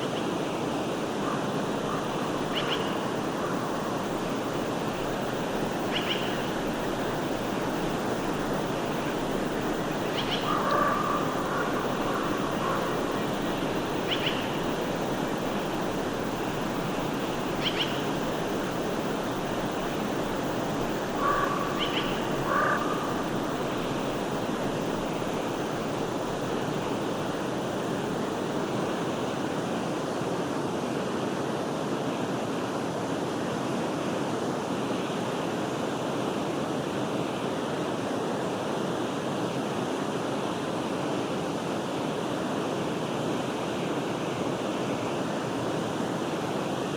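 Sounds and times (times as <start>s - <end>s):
stream flowing: 0.0s - 34.5s.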